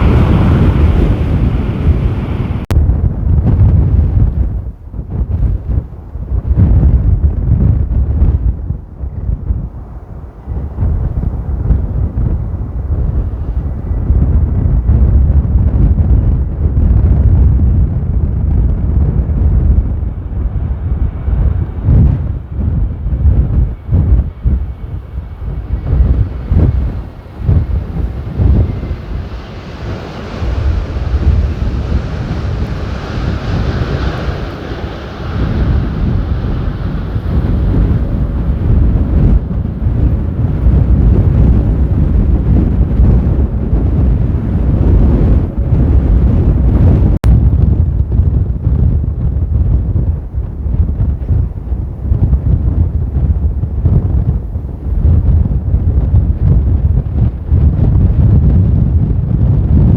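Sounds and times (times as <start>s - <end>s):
gusting wind buffeting microphone: 0.0s - 59.9s.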